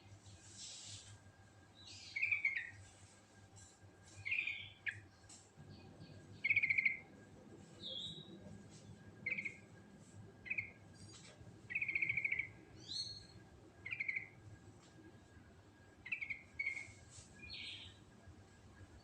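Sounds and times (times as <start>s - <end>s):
bulbul singing trilled phrases: 6.3s - 7.1s, 11.7s - 14.4s.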